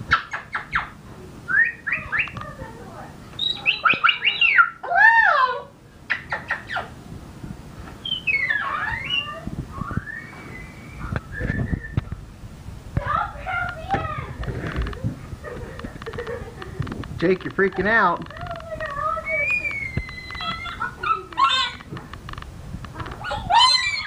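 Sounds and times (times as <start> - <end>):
cockatoo chirping and squawking: 0.1 - 1.0, 1.6 - 2.4, 3.4 - 7.0, 8.0 - 11.4, 18.4 - 22.0, 23.0 - 24.0.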